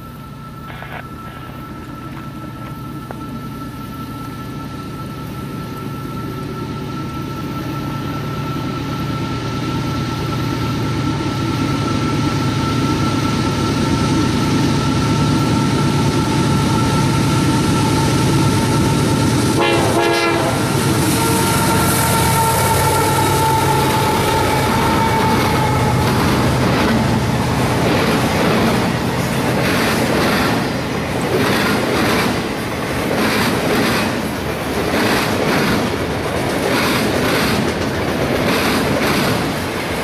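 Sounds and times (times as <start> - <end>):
steady high tone: 0.0 - 31.3
locomotive engine rumble: 0.0 - 40.0.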